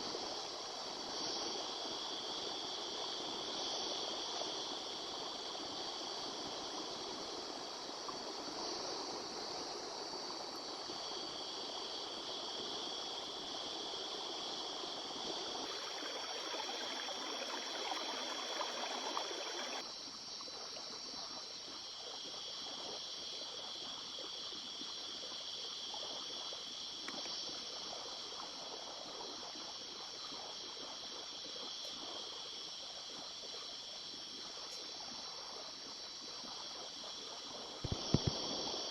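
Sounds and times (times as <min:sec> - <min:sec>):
river flowing: 0:15.6 - 0:19.8
steady high-pitched tones: 0:15.6 - 0:19.8.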